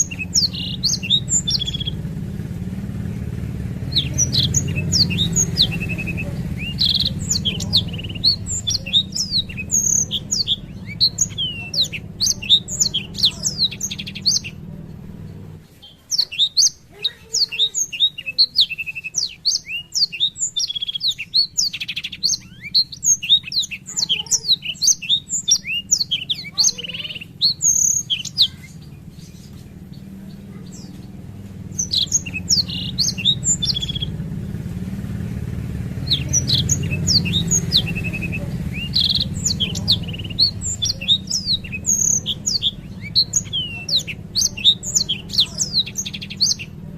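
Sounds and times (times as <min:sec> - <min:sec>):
low steady hum: 0:00.0 - 0:16.1
canary singing chirps and trills: 0:00.0 - 0:46.9.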